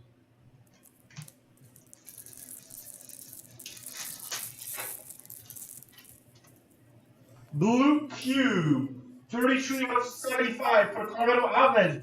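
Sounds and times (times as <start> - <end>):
foil wrapper crinkling: 0.8 - 6.4.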